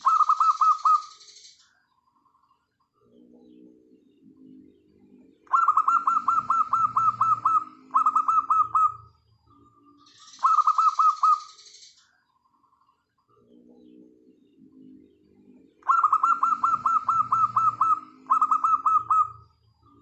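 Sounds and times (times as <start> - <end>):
doves cooing softly: 0.0 - 1.1, 3.2 - 9.2, 10.4 - 11.4, 14.6 - 20.0
bird rapid chirps: 0.0 - 1.7, 5.4 - 12.0, 15.7 - 20.0.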